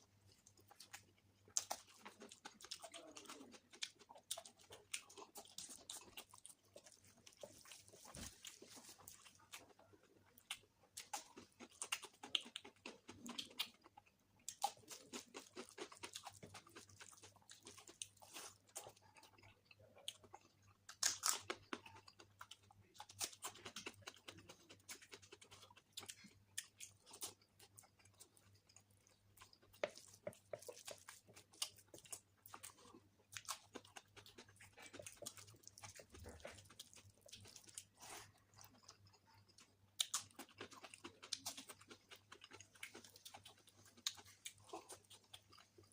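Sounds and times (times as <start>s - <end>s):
person chewing with wet smacks: 0.0s - 45.9s.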